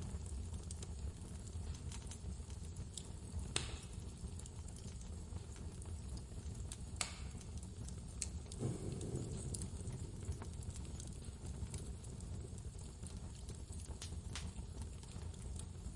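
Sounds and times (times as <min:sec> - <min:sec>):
fire pops: 0:00.0 - 0:15.9
wood fire crackling: 0:00.0 - 0:15.9
wind rumbling: 0:08.5 - 0:12.8.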